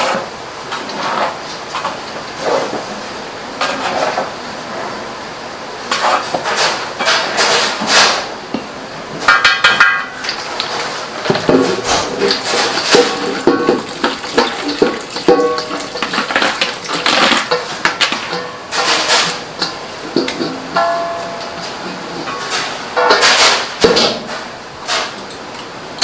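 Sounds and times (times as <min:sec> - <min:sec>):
kitchen objects knocking and clattering: 0:05.9 - 0:25.2.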